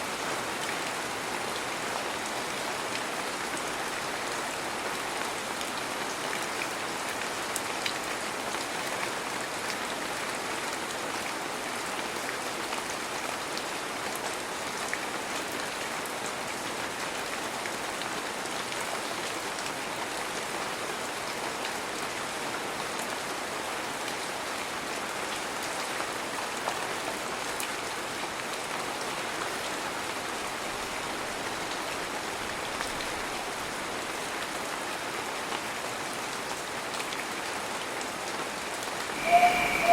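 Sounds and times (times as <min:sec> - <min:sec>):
heavy rain falling: 0:28.6 - 0:39.9.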